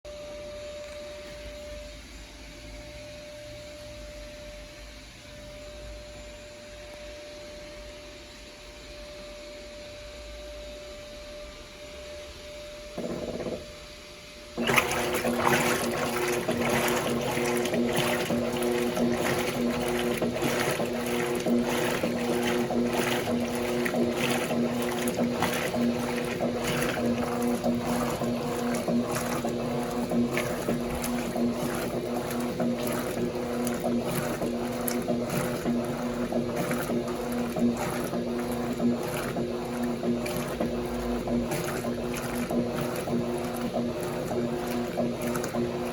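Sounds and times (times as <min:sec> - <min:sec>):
washing machine motor hum: 0:08.6 - 0:45.9
water sloshing in a tub: 0:14.6 - 0:45.9.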